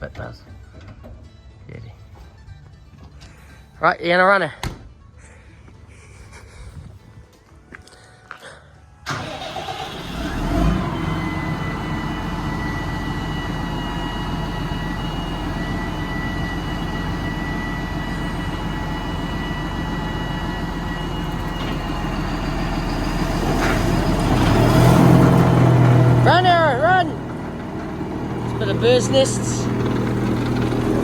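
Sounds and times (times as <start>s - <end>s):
tractor engine running: 9.1s - 31.0s
high machine whine: 10.8s - 24.3s.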